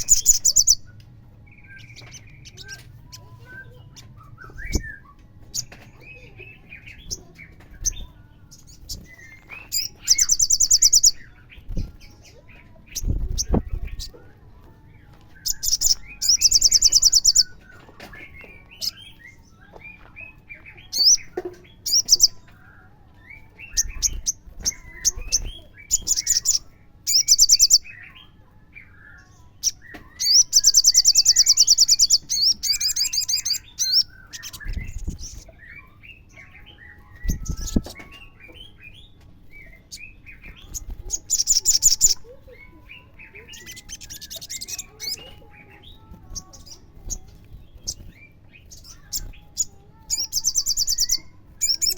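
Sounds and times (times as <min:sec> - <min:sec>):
bird twittering chirps: 0:00.0 - 0:14.2, 0:15.3 - 0:51.9
bird buzzy trills: 0:29.5 - 0:51.9.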